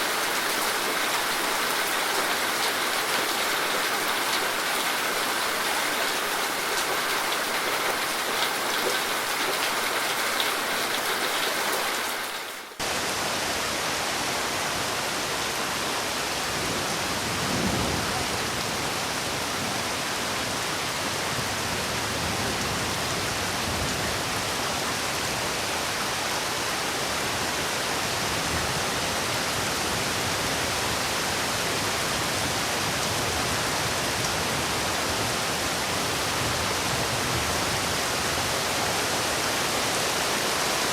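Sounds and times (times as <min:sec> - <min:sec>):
light rain pattering: 0:00.0 - 0:28.1
heavy rain rushing: 0:00.0 - 0:40.9.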